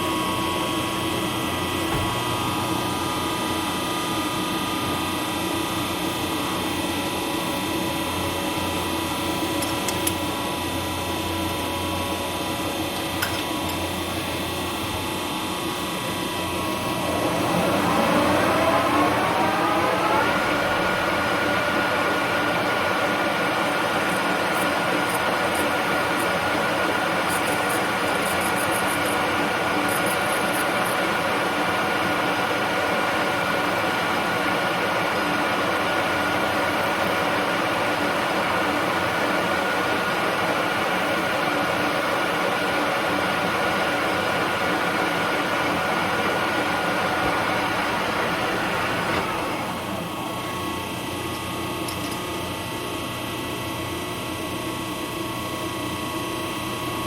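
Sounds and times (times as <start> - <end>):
constant machine whine: 0.0 - 57.0
machine gearing running: 15.8 - 41.3
machine cutting nylon: 16.7 - 31.1.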